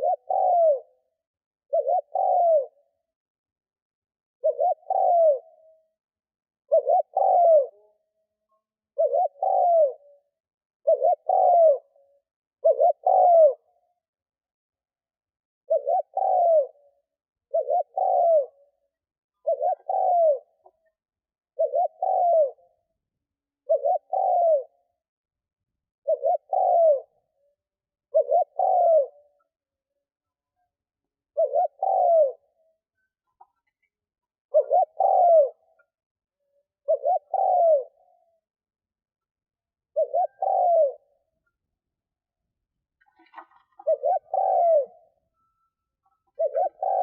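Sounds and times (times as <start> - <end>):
dove cooing: 0.0 - 1.0, 1.7 - 3.0, 4.4 - 5.8, 6.6 - 13.8, 15.7 - 23.0, 23.6 - 24.8, 26.0 - 27.4, 28.1 - 29.6, 30.6 - 36.0, 36.8 - 38.5, 39.8 - 41.4, 43.0 - 45.3, 46.0 - 47.0.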